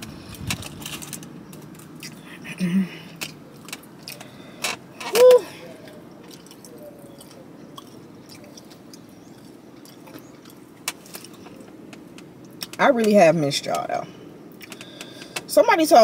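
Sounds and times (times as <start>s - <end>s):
low steady hum: 0.0s - 16.0s
chewing crispy chicken: 5.7s - 12.7s.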